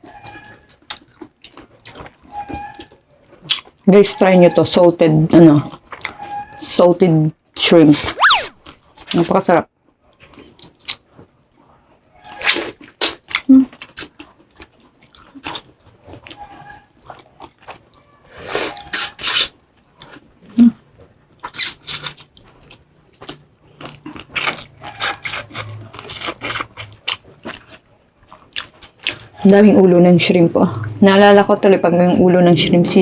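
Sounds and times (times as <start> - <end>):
crunchy chewing of shrimp: 0.0 - 3.9, 8.5 - 9.2, 9.8 - 29.6.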